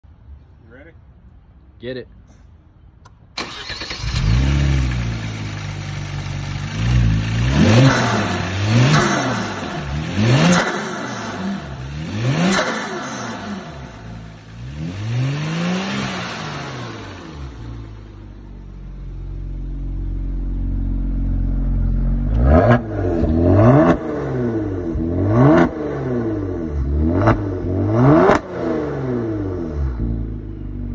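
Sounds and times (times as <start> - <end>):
quick sharp throttle blips: 3.4 - 4.4
car engine revving: 3.4 - 30.9.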